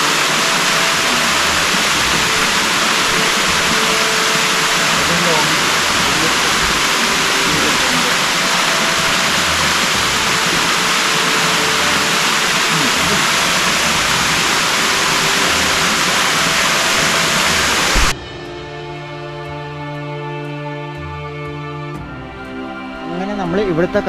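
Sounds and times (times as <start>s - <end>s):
waterfall roar: 0.0s - 18.2s
soft background music: 0.0s - 24.0s.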